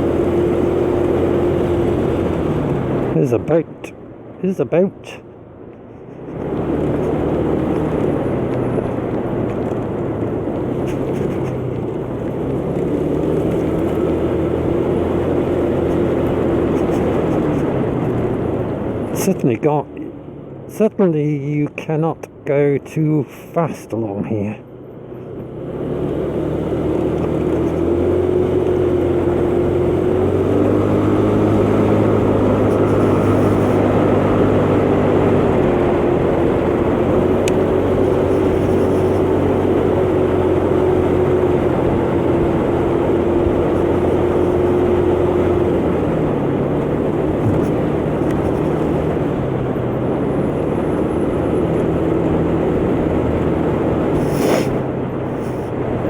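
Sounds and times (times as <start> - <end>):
motor scooter engine running: 0.0 - 2.0, 25.8 - 50.7, 53.2 - 55.8
road and wind noise: 0.0 - 56.0.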